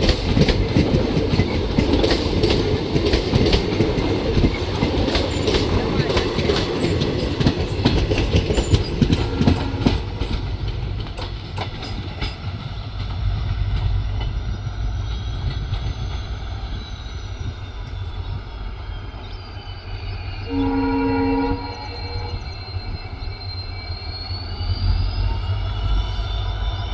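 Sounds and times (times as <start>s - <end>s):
train wheels clicking on rails: 0.0s - 20.6s
train rumbling past: 0.0s - 26.9s
train horn: 9.0s - 10.7s, 20.4s - 22.5s.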